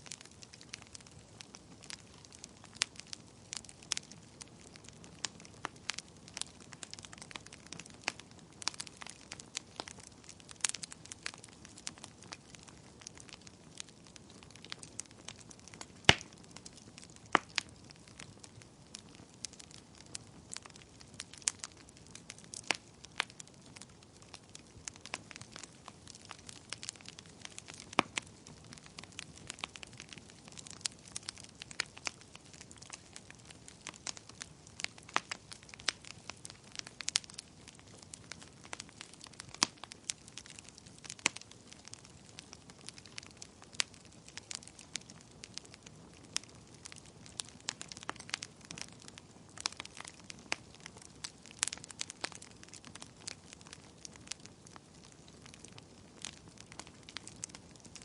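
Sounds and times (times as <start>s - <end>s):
fire pops and snaps: 0.0s - 58.0s
soft steady fire hiss: 0.0s - 58.0s.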